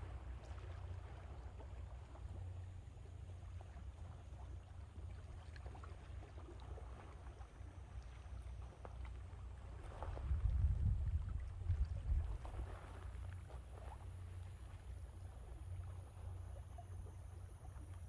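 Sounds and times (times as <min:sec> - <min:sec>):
small water splashes: 0:00.0 - 0:18.0
wind rumble on microphone: 0:09.6 - 0:16.4.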